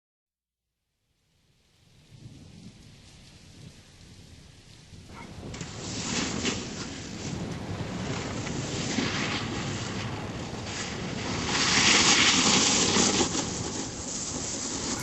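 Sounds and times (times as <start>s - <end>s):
wind rushing over microphone: 2.0s - 15.0s.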